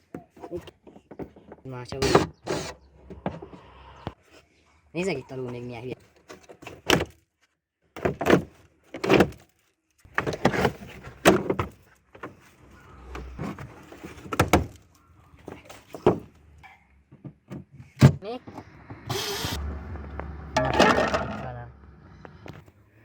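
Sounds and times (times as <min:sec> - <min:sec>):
car parts knocking and clunking: 0:00.0 - 0:03.7, 0:07.9 - 0:09.4, 0:10.0 - 0:19.2, 0:20.1 - 0:22.7.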